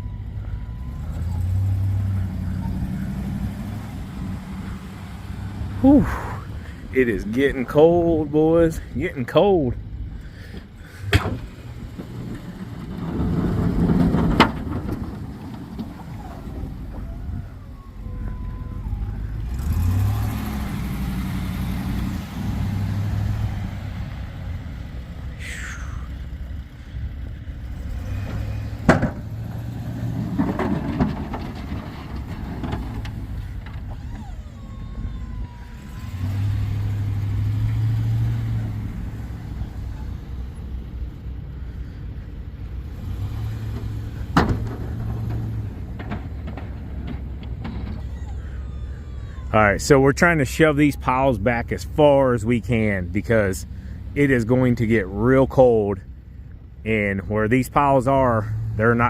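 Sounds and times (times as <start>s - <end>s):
truck engine changing revs: 0.0s - 59.0s
sharp clunks: 10.5s - 12.5s, 28.8s - 29.4s, 43.7s - 48.2s.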